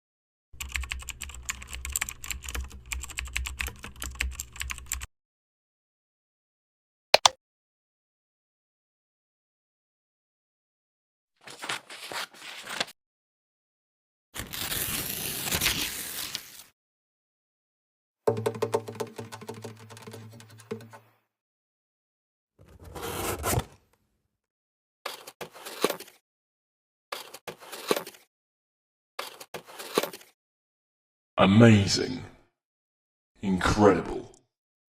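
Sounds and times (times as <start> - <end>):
sharp clicks: 7.2 - 7.4
packaging scraping and rustling: 25.1 - 26.2, 27.2 - 28.3, 29.2 - 30.4.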